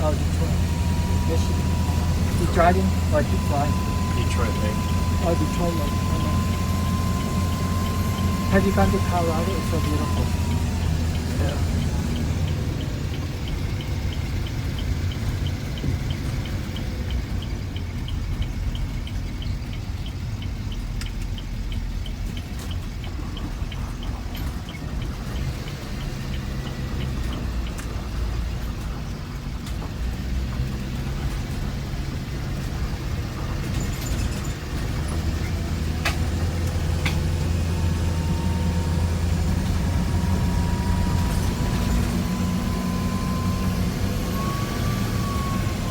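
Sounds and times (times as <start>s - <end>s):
rising whine: 0.0s - 17.1s, 35.0s - 45.9s
fast regular ticking: 0.0s - 33.8s
bus engine running: 0.0s - 45.9s.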